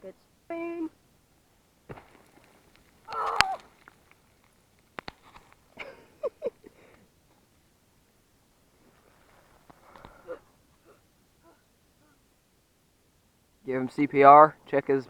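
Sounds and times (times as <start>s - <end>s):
footsteps on rocky ground: 1.8s - 5.8s
faint vocal sounds: 9.0s - 12.4s.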